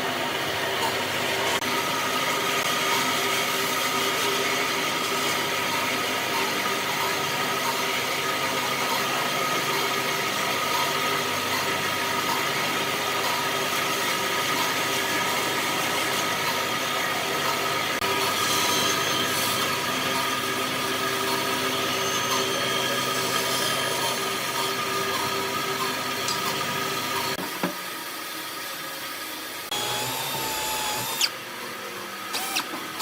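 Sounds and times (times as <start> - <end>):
woodworking power tool running: 0.0 - 7.5, 29.4 - 33.0.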